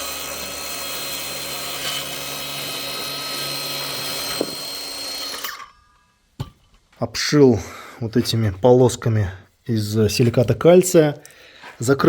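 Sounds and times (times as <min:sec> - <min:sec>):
power tool running: 0:00.0 - 0:06.0.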